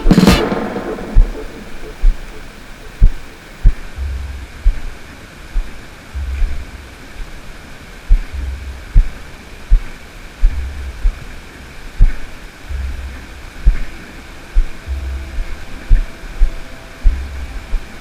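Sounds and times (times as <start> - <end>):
low thuds on microphone: 0.0 - 2.4
low rumble: 0.0 - 4.8
faint hiss: 0.0 - 18.0.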